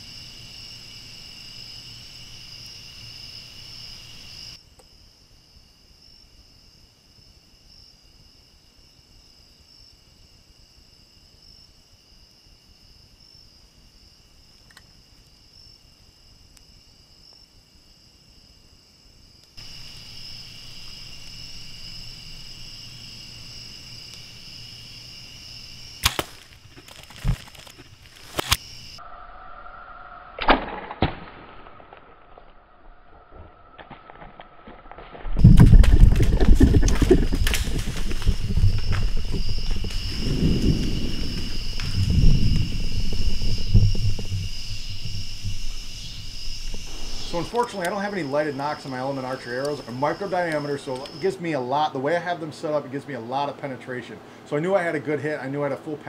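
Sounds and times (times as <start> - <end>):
crickets chirping: 0.0 - 30.4, 31.7 - 56.0
arrow hitting target: 26.0 - 26.5, 28.2 - 28.6, 30.3 - 32.6, 46.7 - 47.9
bow shot crack: 26.0 - 28.7, 30.3 - 32.7, 43.6 - 48.1.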